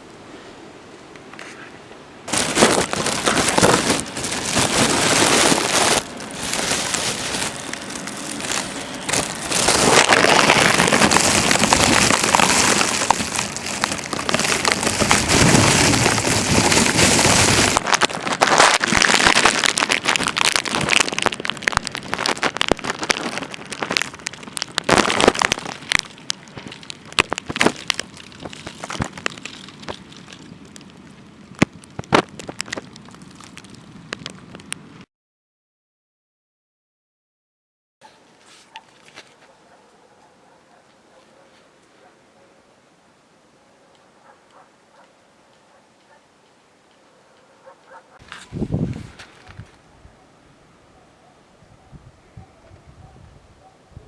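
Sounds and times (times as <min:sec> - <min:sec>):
snow and graupel pelting microphone: 0:02.3 - 0:30.5, 0:47.6 - 0:50.3.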